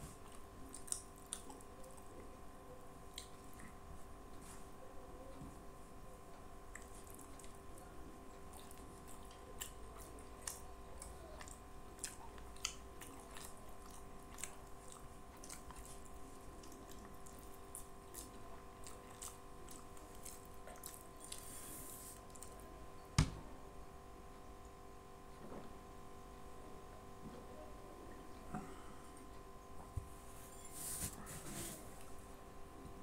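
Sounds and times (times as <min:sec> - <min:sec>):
faint steady hum: 0:00.0 - 0:33.0
person chewing: 0:00.1 - 0:02.1, 0:03.1 - 0:03.8, 0:08.3 - 0:22.6.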